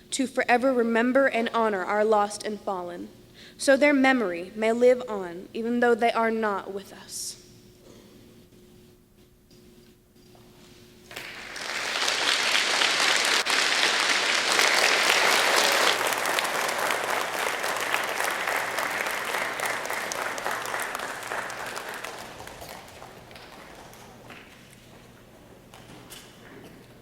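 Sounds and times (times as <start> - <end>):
audience applause in a hall: 11.1 - 24.8.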